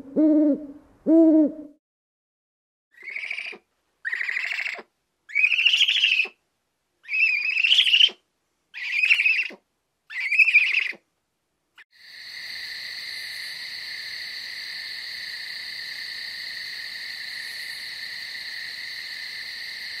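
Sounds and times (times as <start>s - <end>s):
barn owl screeching: 3.0s - 6.4s, 7.0s - 8.2s, 8.8s - 11.0s.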